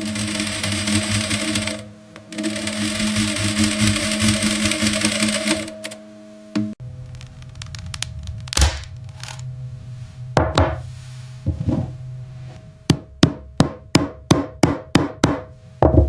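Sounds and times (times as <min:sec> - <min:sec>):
hammer striking: 0:10.4 - 0:10.9, 0:12.9 - 0:16.0.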